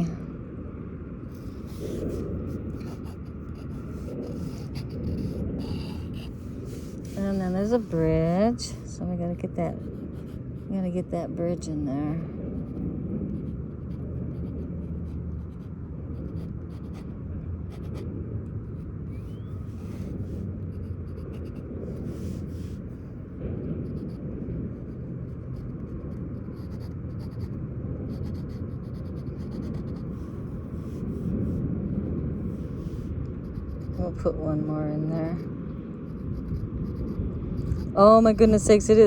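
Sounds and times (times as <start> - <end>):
steady low rumble: 0.0 - 39.0
pen scratching on paper: 1.3 - 8.9, 9.7 - 11.0, 13.4 - 17.1, 17.7 - 18.1, 18.7 - 22.8, 23.9 - 24.2, 24.8 - 35.5, 36.1 - 38.1.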